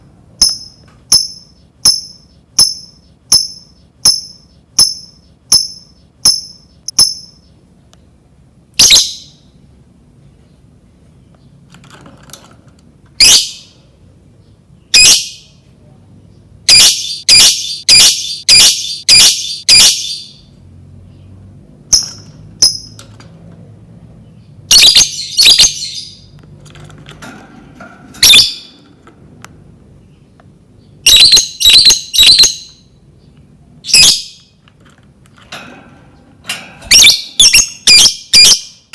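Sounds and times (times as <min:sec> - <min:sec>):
lovebird chirping: 0:00.4 - 0:07.6, 0:08.8 - 0:09.5, 0:13.2 - 0:13.8, 0:14.4 - 0:15.6, 0:16.7 - 0:20.5, 0:24.2 - 0:26.4, 0:28.2 - 0:28.8, 0:30.0 - 0:34.6, 0:36.8 - 0:38.9.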